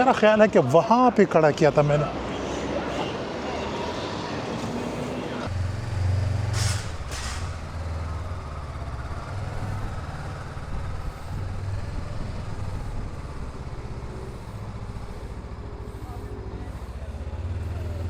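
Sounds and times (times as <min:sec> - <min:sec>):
heavy vehicle engine running: 0:04.6 - 0:18.0
air brake hisses: 0:06.3 - 0:08.2, 0:12.4 - 0:18.0.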